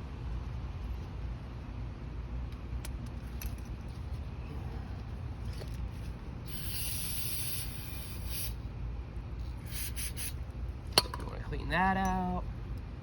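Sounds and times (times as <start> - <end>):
steady low hum: 0.0 - 13.0
hissing spray: 6.5 - 8.6, 9.6 - 10.4.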